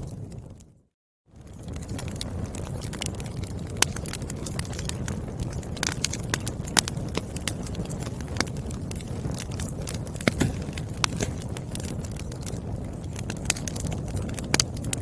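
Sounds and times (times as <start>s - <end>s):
firewood crackling and popping: 0.0s - 15.0s
rumble of flames: 0.0s - 15.0s.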